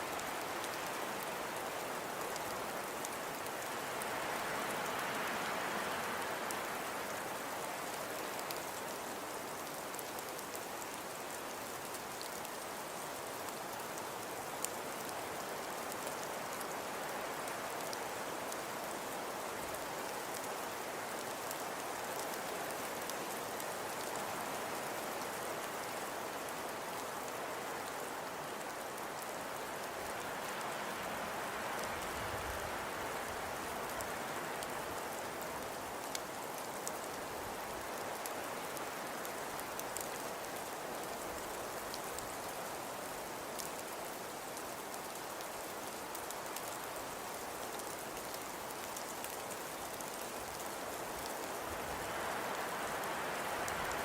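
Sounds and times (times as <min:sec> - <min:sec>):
rain pattering on a surface: 0:00.0 - 0:54.0
faint ticks: 0:37.8 - 0:54.0.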